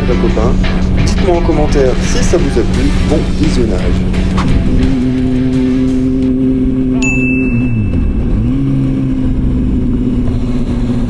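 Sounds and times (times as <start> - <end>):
motorcycle engine running: 0.0 - 11.0
high steady tone: 5.7 - 8.8.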